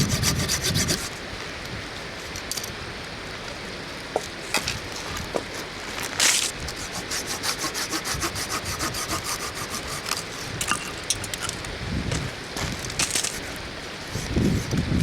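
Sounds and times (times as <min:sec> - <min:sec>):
hand saw cutting wood: 0:00.0 - 0:01.2, 0:05.4 - 0:10.8.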